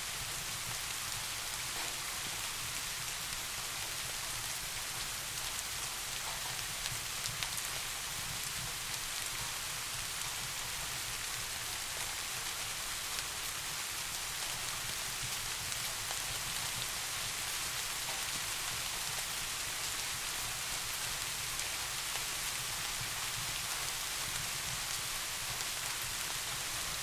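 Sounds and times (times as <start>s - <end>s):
steady rain hiss: 0.0s - 27.0s
faint raindrop ticks: 1.2s - 3.4s, 5.3s - 9.5s, 15.2s - 19.9s.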